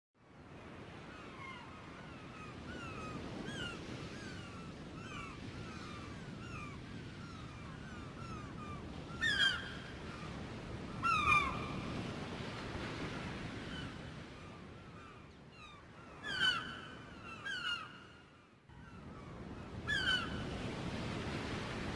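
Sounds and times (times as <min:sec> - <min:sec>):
gulls calling: 0:15.0 - 0:20.6.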